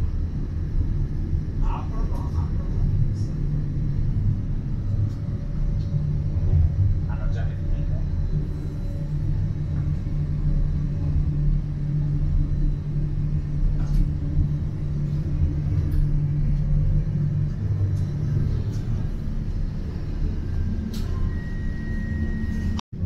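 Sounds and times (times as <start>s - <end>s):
train rumble inside carriage: 0.0s - 23.0s.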